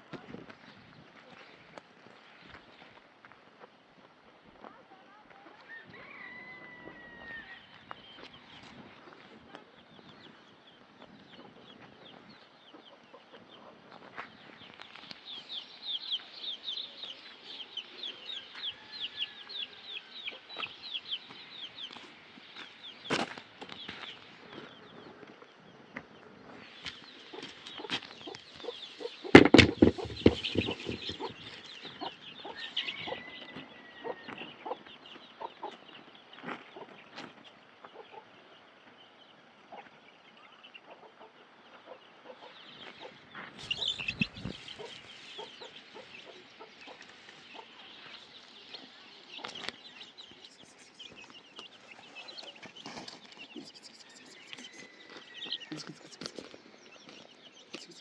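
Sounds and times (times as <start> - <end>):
bird calls: 5.6 - 58.0
chickens clucking: 6.2 - 15.3, 20.2 - 58.0
knocks and thuds: 29.3 - 31.4.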